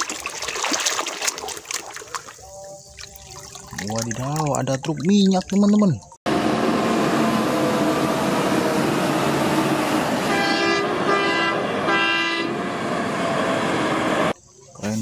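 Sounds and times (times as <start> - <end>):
tanker truck passing: 6.3 - 14.4
truck horn blasts: 10.1 - 12.7.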